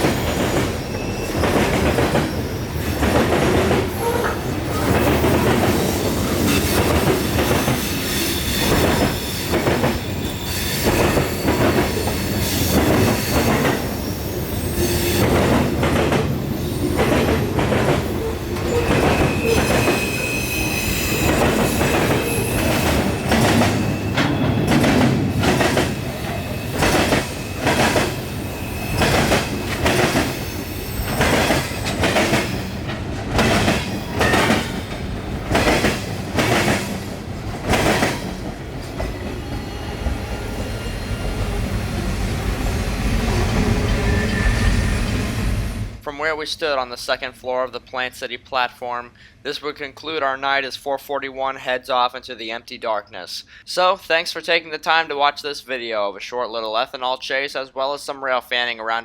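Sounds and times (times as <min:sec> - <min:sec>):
train wheels clicking over rail joints: 0:00.0 - 0:40.2
high-pitched wheel squeal: 0:00.3 - 0:01.6, 0:07.7 - 0:15.3, 0:18.2 - 0:24.6, 0:43.7 - 0:45.3.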